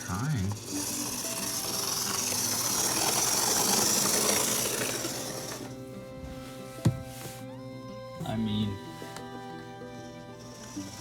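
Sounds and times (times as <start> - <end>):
model locomotive grinding rattle: 0.0 - 5.9, 9.7 - 11.0.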